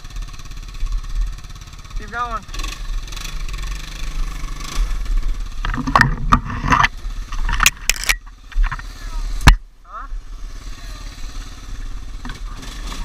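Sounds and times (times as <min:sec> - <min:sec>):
four-wheeler engine under load: 0:00.0 - 0:13.0
sharp knocks and clatters: 0:05.5 - 0:08.9.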